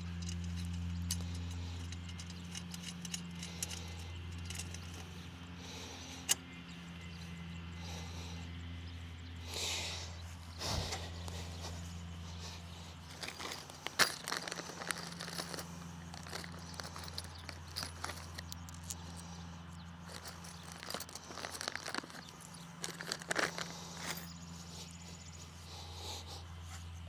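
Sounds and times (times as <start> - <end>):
metal parts clicking and knocking: 0.0 - 5.2, 13.0 - 24.4
steady low hum: 0.0 - 27.0.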